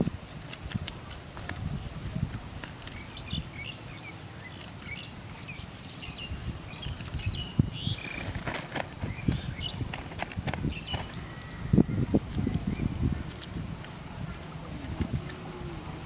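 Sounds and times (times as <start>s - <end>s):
small birds chirping: 2.8s - 13.5s
fish being picked from a net: 6.8s - 7.4s.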